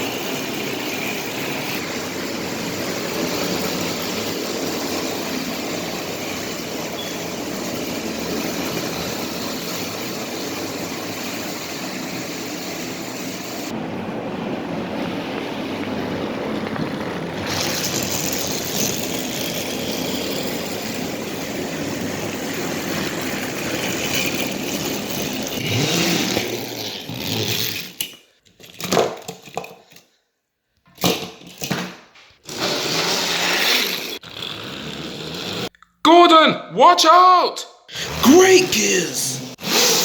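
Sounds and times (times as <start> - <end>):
toy train motors running: 0.0 - 13.7, 17.4 - 28.8, 39.6 - 40.0.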